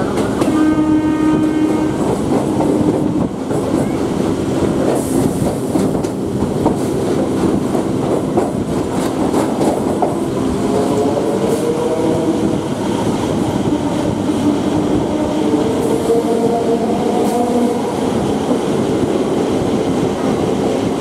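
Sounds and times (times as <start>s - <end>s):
passing train hum: 0.0s - 21.0s
train horn blast: 0.4s - 2.2s
train wheels clattering over rail joints: 4.6s - 11.7s.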